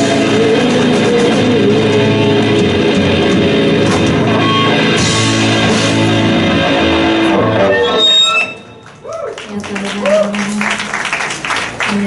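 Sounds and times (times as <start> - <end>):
keyboard chords: 0.0 - 8.0
drums: 0.0 - 8.4
electric guitar: 0.0 - 8.7
rock band playing: 0.0 - 9.0.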